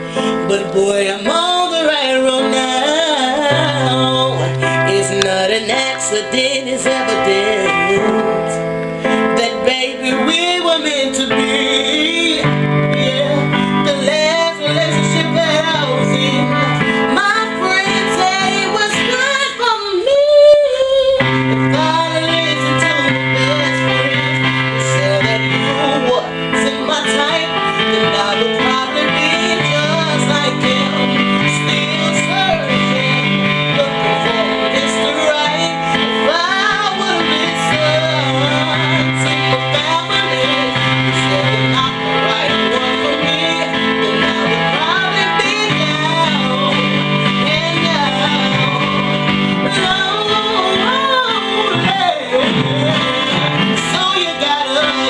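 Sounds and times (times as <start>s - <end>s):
keyboard playing chords: 0.0s - 55.0s.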